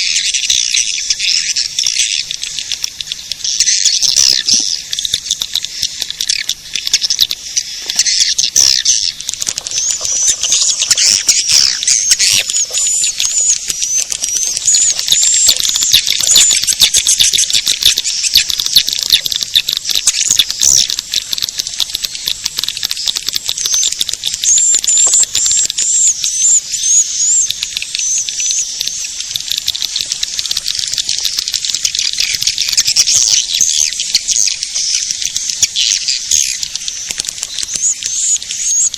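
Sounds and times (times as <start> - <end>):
swiftlets twittering and clicking: 0.0 - 38.9.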